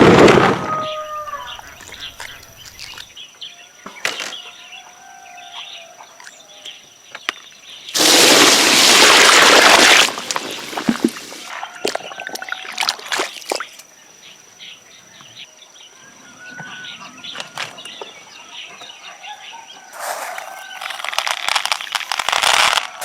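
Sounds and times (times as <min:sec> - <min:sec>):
birds chirping: 0:00.7 - 0:07.9, 0:13.5 - 0:19.9.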